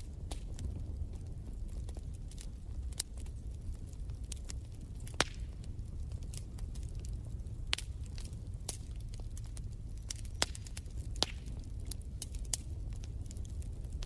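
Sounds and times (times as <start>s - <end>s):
fire flames rumbling: 0.0s - 14.0s
wood fire snapping and popping: 0.0s - 14.0s.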